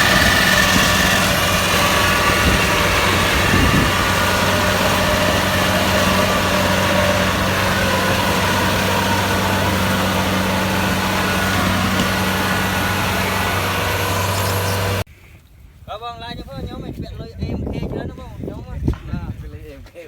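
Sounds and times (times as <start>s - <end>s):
combine harvester running: 0.0s - 15.1s.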